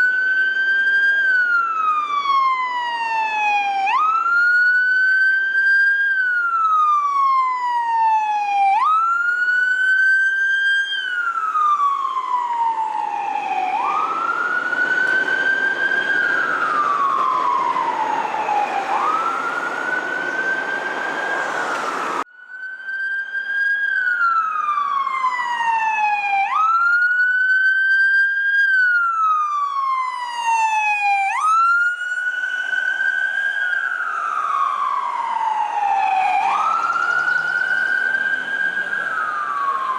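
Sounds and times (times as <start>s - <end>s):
engine and road noise: 0.0s - 8.1s, 8.7s - 22.3s, 23.5s - 39.9s
electronic siren wailing: 0.0s - 39.9s.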